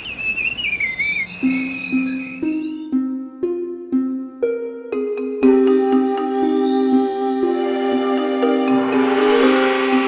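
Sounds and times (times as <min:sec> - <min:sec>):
bird warbling song: 0:00.0 - 0:03.2
soft sustained music notes: 0:01.4 - 0:10.0.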